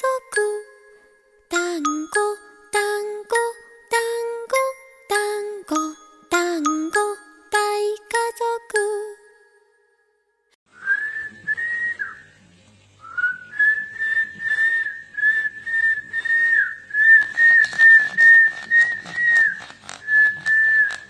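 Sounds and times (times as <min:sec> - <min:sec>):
high pulsing whistle: 0:13.1 - 0:21.0.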